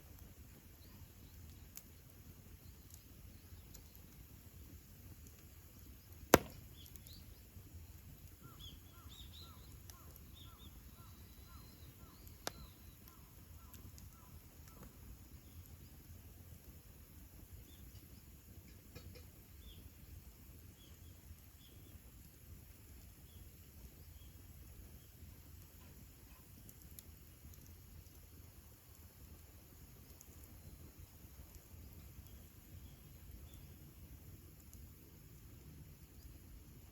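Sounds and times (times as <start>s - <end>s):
campfire crackling: 0.0s - 36.9s
fire popping: 0.0s - 36.9s
bird chirping: 8.4s - 14.4s.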